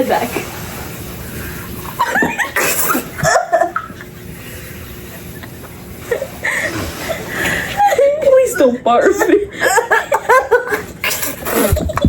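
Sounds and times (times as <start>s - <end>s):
people laughing: 1.9s - 4.2s, 5.0s - 12.0s.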